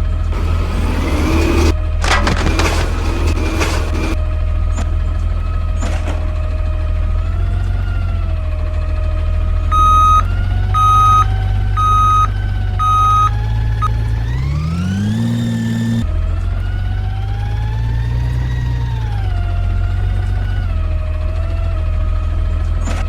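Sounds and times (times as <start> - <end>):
engine revving: 0.0 - 4.2, 9.8 - 16.1
truck engine running: 0.0 - 4.2, 9.6 - 16.0
reversing beeps: 9.7 - 14.0.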